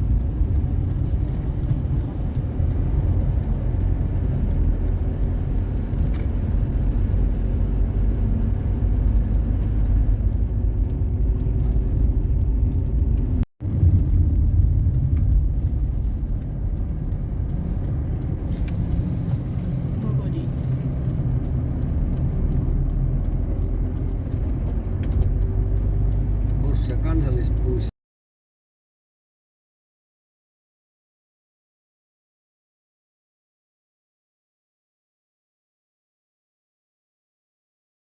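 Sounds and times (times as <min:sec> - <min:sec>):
car driving rumble from inside: 0:00.0 - 0:27.9
faint engine hum: 0:00.0 - 0:27.9.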